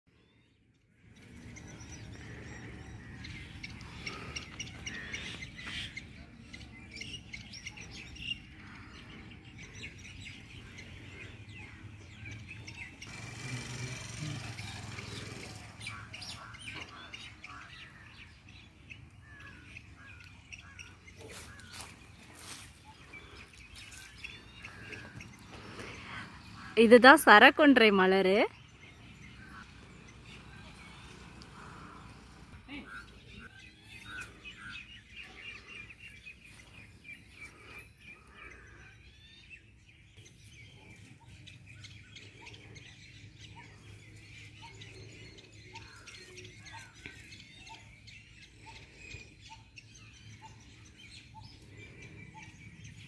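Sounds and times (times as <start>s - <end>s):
small birds chirping: 0.1s - 53.0s.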